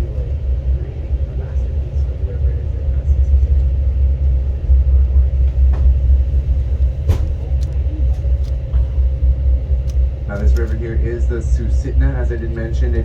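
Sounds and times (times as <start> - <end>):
train rumbling: 0.0 - 13.0
sharp clicks: 9.8 - 10.8.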